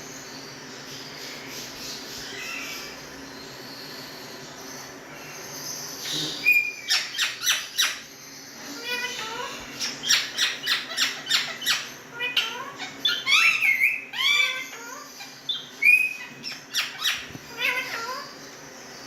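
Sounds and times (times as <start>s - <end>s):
parrots screeching: 2.2s - 3.1s, 6.0s - 18.4s
parrot whistle-like calls: 8.8s - 18.4s.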